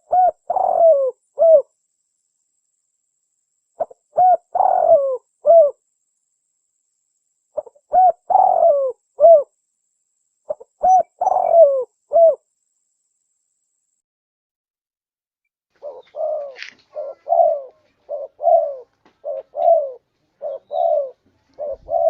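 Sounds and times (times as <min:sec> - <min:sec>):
dove cooing: 0:00.0 - 0:01.7, 0:03.8 - 0:05.8, 0:07.6 - 0:09.5, 0:10.5 - 0:12.4, 0:15.8 - 0:22.0.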